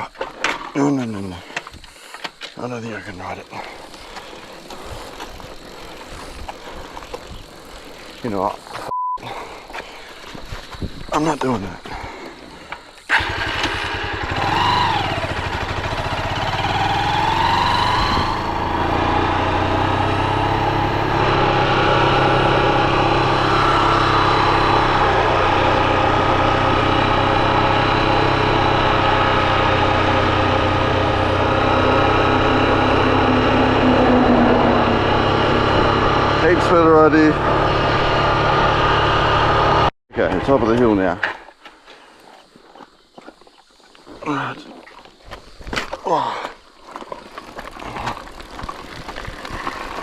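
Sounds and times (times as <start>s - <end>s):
motorbike engine starting and revving: 13.1s - 39.9s.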